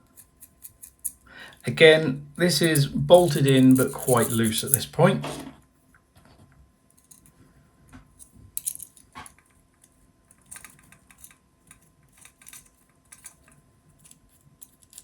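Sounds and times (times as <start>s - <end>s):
metal bolts and nuts clinking: 2.5s - 5.4s.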